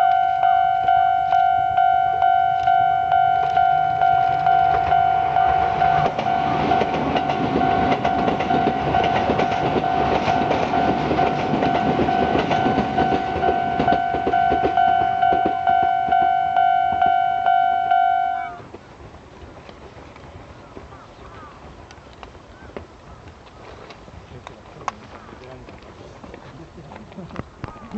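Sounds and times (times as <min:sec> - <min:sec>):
steady ringing tone: 0:00.0 - 0:18.6
train wheels clacking over rails: 0:03.4 - 0:17.2.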